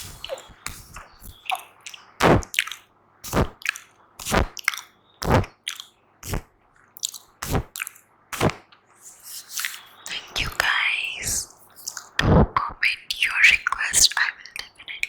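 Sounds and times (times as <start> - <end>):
wet mouth pops: 0.0 - 8.6, 11.8 - 12.6
mouth clicks and smacks: 0.0 - 15.0.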